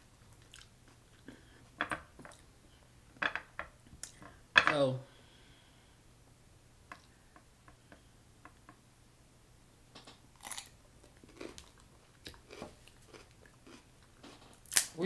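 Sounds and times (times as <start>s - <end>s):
biting and chewing cucumber: 10.4s - 13.9s.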